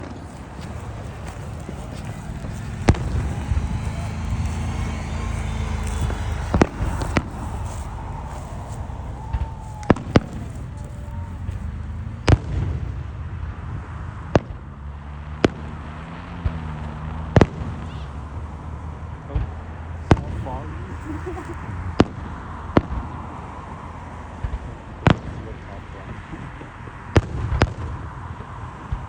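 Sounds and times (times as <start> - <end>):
fireworks bangs: 0.0 - 13.6, 15.4 - 29.0
steady low hum: 0.0 - 13.8.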